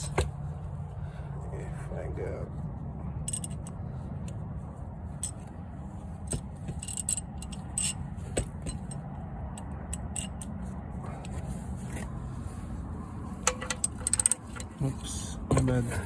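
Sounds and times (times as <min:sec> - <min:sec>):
socket wrench clicking: 0:03.3 - 0:03.7, 0:06.3 - 0:09.0, 0:09.6 - 0:10.6, 0:13.4 - 0:14.8.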